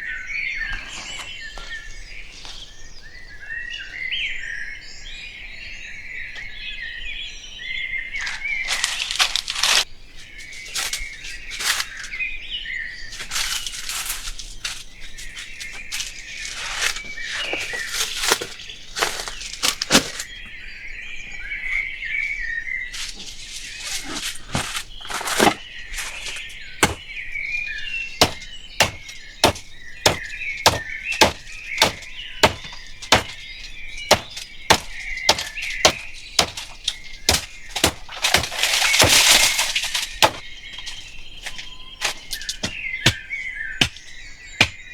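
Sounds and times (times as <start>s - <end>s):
birds chirping: 0.0s - 44.9s
sharp knocks: 26.8s - 27.1s, 28.2s - 40.4s.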